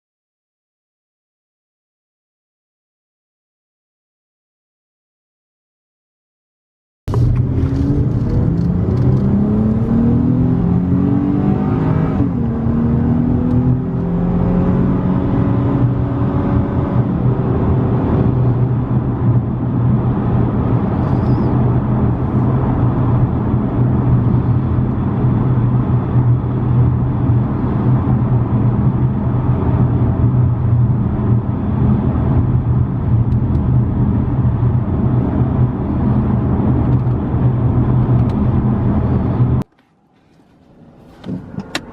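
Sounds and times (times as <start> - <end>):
car exhaust accelerating: 7.1 - 39.7.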